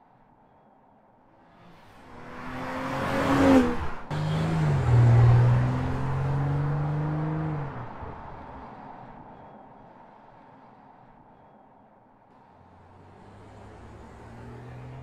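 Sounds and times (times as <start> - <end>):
car engine accelerating: 1.5 - 8.8, 12.4 - 15.0.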